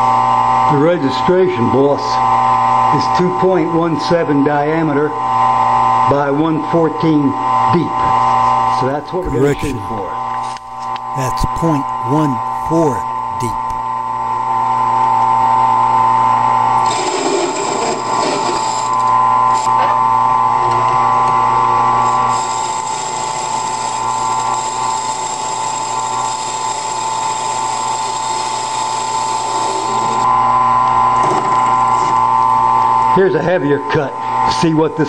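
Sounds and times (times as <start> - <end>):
wood lathe high whine: 16.1 - 33.1.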